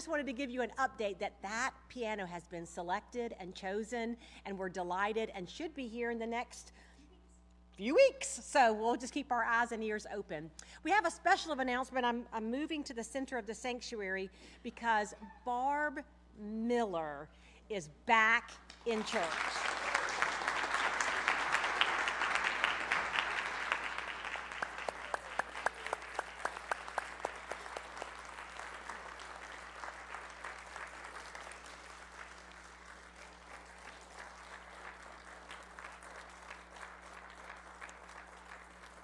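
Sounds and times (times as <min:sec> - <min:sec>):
crowd applauding: 0:19.0 - 0:39.0.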